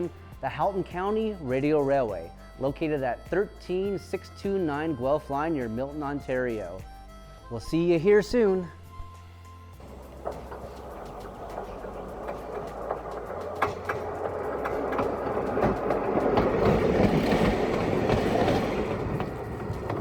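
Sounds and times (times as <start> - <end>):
train wheels clicking over rail joints: 9.8 - 20.0.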